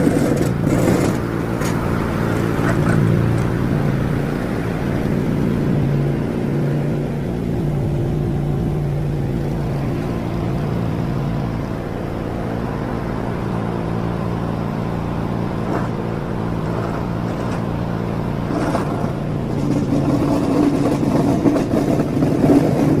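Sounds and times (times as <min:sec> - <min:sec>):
mower motor humming: 0:00.0 - 0:04.1, 0:15.5 - 0:23.0.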